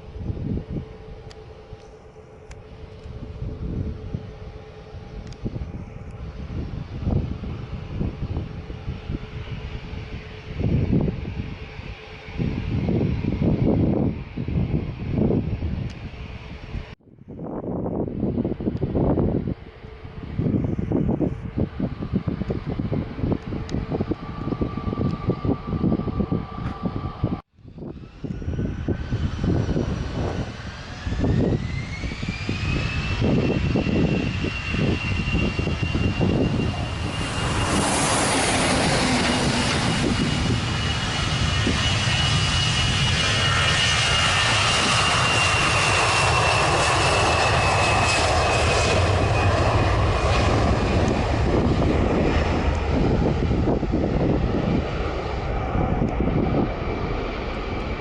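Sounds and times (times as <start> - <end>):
jet engines whining: 0.0 - 17.0, 17.9 - 58.0
loud jet noise: 18.1 - 58.0.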